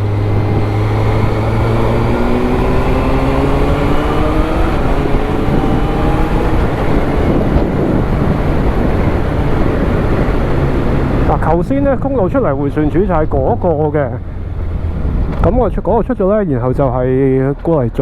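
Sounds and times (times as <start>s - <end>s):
motorcycle engine pulling: 0.0s - 12.0s
wind noise: 0.0s - 17.1s.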